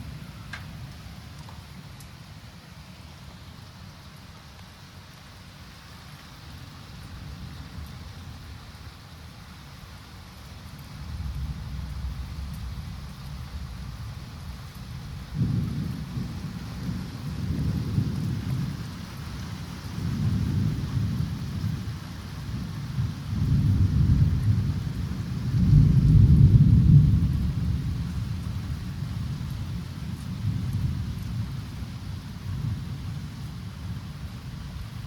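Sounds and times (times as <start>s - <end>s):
rain hissing: 0.0s - 35.0s
thunder rumbling: 10.8s - 35.0s.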